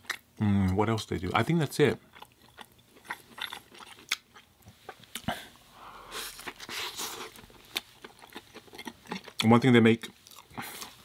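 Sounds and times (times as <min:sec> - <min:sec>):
chewing mouth sounds: 0:02.1 - 0:05.4, 0:06.3 - 0:11.0.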